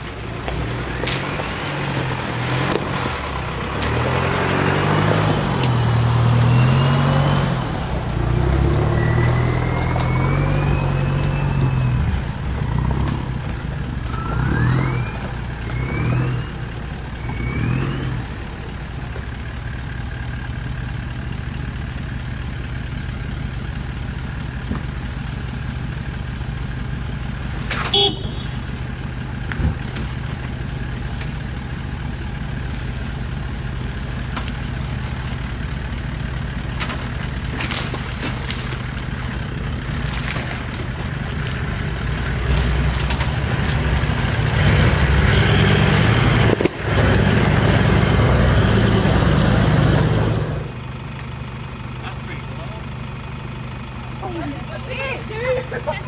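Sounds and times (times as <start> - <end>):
engine revving: 0.0 - 18.7, 36.1 - 50.9.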